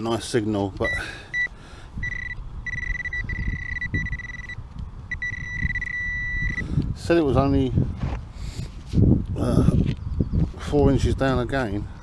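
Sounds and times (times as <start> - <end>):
metal detector beep: 0.8 - 6.7.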